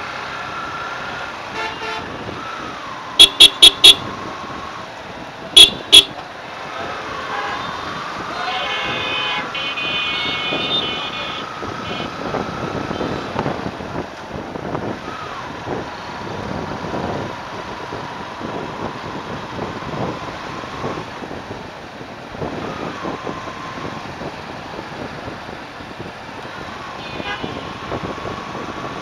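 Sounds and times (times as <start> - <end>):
road and wind noise: 0.0 - 29.0
vehicle horn blasts: 1.5 - 2.1, 3.2 - 4.1, 5.6 - 6.2, 8.6 - 12.2, 27.0 - 27.7.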